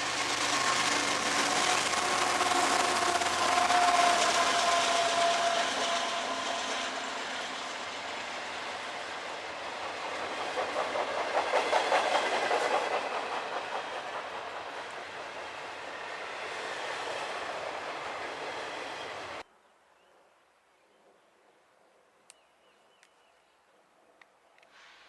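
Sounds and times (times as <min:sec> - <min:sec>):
train wheels clacking over rail joints: 0:00.0 - 0:15.6.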